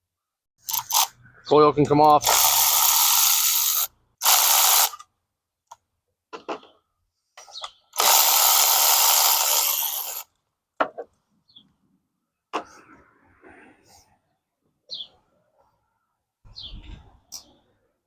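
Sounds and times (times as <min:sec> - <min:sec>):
cordless power tool spinning: 0:02.2 - 0:05.0, 0:08.0 - 0:10.3.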